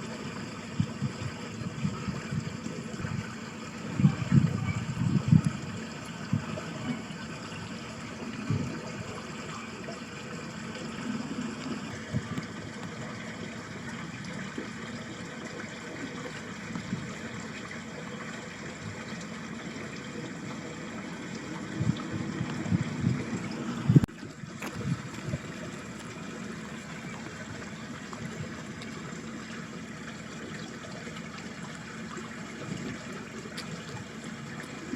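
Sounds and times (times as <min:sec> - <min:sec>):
water running in a ditch: 0:00.0 - 0:34.9
wind bumps on microphone: 0:03.9 - 0:07.0, 0:21.7 - 0:24.1.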